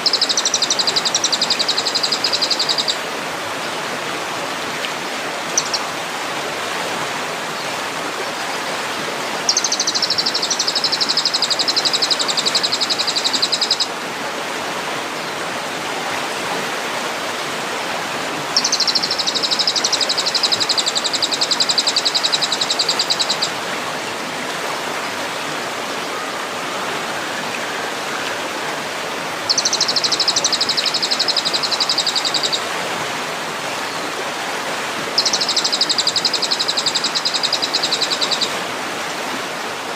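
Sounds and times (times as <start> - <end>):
songbird buzzing trill: 0.0 - 3.0, 5.6 - 5.9, 9.4 - 13.9, 18.6 - 23.5, 29.5 - 32.6, 35.2 - 38.5
running water rushing: 0.0 - 39.9.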